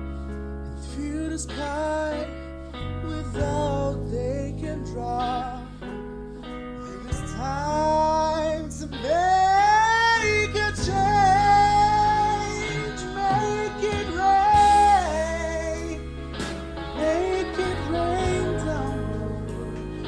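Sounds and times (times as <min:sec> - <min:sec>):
person singing long sliding notes: 0:06.8 - 0:20.0
band accompaniment: 0:10.8 - 0:20.0.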